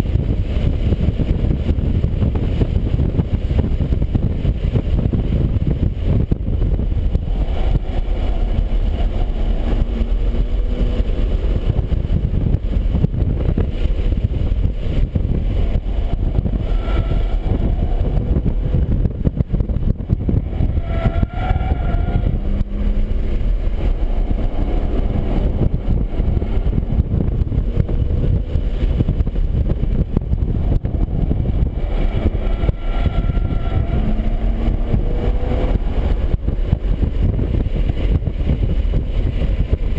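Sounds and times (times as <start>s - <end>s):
car engine running hard: 0.0s - 39.9s
road and wind rumble: 0.0s - 39.9s.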